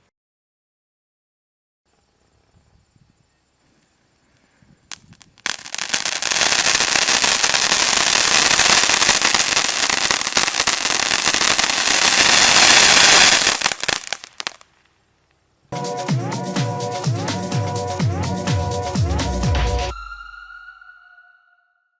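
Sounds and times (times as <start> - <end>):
fountain firework hissing and crackling: 4.9 - 14.7
firework crack: 4.9 - 15.0.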